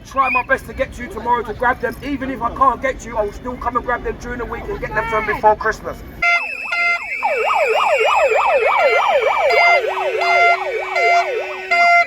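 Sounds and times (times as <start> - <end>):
alternating siren tones: 6.2 - 12.0
electronic siren yelping: 6.2 - 12.0.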